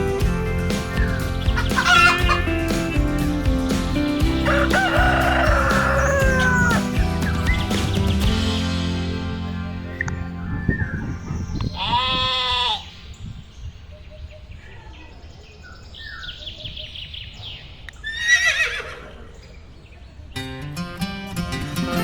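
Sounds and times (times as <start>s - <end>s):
farm animals calling: 0.7s - 3.0s, 4.2s - 8.4s, 9.7s - 20.6s.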